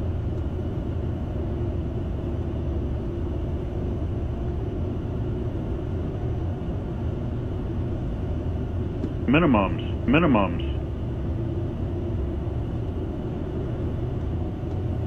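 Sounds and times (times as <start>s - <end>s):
low rumble of airflow and engines: 0.0s - 15.0s
faint steady hum: 7.6s - 15.0s.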